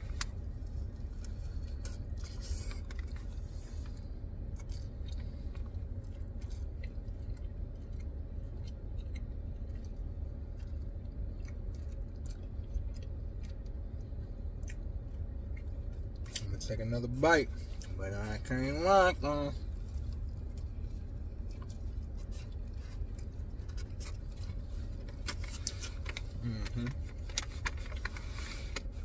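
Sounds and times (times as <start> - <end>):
person chewing food: 0.0 - 16.4, 19.6 - 29.0
steady low rumble: 0.0 - 29.0.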